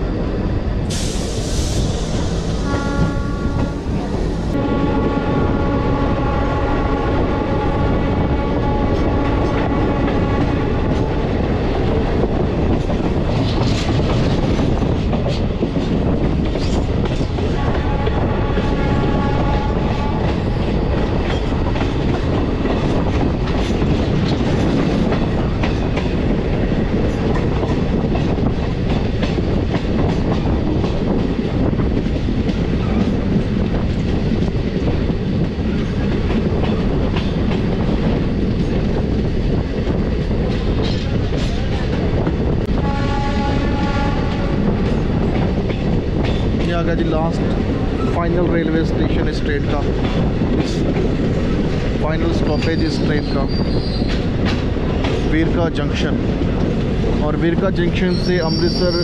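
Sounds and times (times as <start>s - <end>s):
train wheels on rails: 0.0s - 59.0s
train horn blast: 2.6s - 11.2s, 17.6s - 20.5s, 42.7s - 44.8s
clatter over rail joints: 11.7s - 18.8s, 44.7s - 59.0s.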